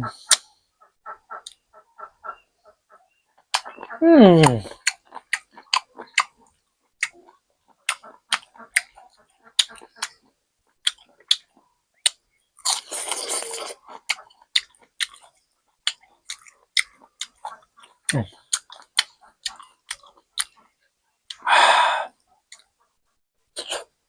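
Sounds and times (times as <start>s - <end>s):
mouth clicks: 3.5s - 5.0s, 15.9s - 20.6s
crunchy chewing: 12.1s - 20.6s.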